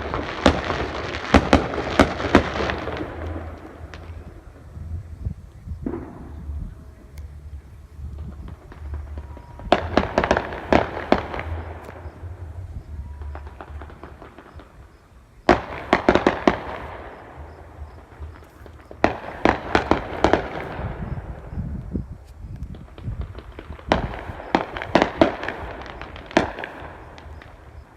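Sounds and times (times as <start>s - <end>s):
fireworks crackling: 0.0s - 27.9s
low rumble: 1.6s - 15.9s, 16.6s - 25.2s.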